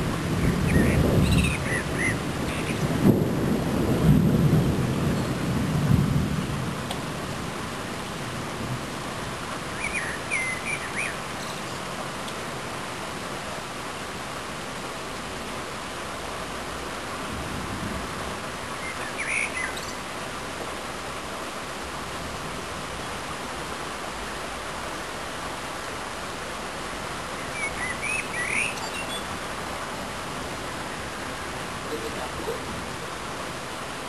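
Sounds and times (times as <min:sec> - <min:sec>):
bird chirping: 0:00.4 - 0:02.8, 0:27.4 - 0:29.4.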